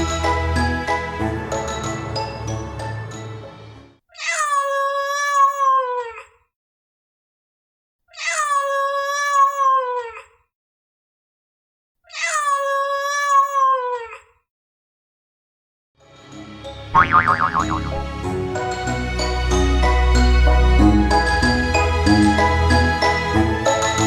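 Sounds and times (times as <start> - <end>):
background music: 0.0 - 4.0, 16.1 - 24.0
long cat meow: 4.2 - 6.4, 8.1 - 10.4, 12.1 - 14.3.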